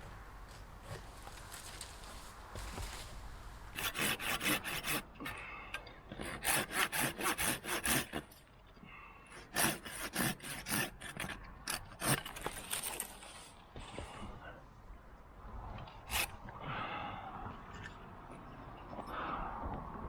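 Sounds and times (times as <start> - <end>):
rope rasping against wood: 3.8 - 5.1, 6.2 - 8.4, 9.4 - 13.4.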